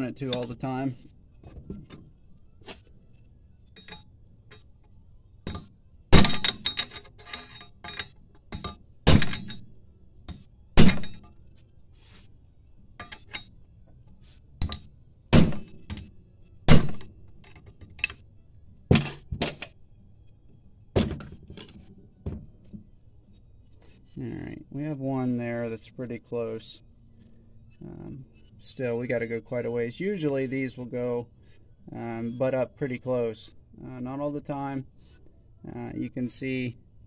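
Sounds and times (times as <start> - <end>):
hammer hitting metal wrench: 5.5 - 7.0, 7.9 - 9.6, 10.3 - 11.3, 16.7 - 17.1, 18.9 - 19.7.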